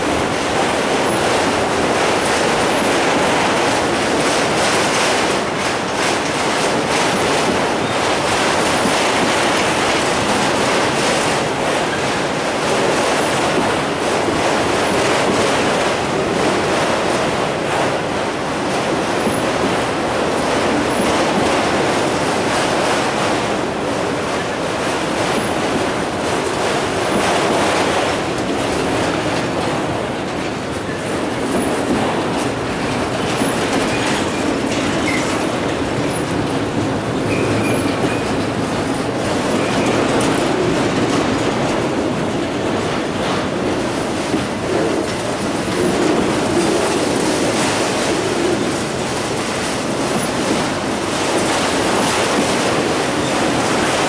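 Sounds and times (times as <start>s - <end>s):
freight train rumbling past: 0.0s - 54.0s
wheel squeals: 37.3s - 38.3s.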